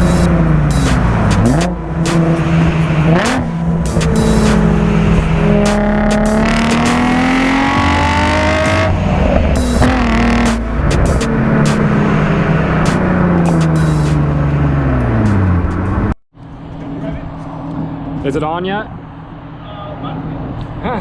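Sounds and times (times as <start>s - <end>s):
car engine accelerating: 0.0s - 16.2s.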